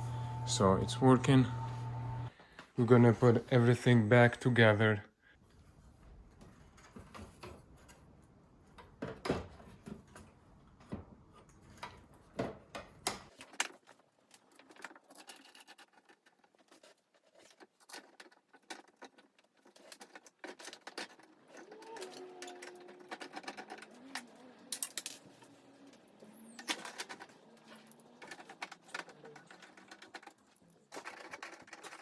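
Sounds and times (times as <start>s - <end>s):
metal panels and screws clicking: 10.8s - 32.0s.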